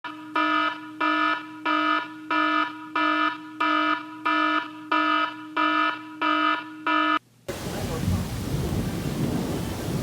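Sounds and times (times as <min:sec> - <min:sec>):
electronic alarm beeping: 0:00.1 - 0:07.2.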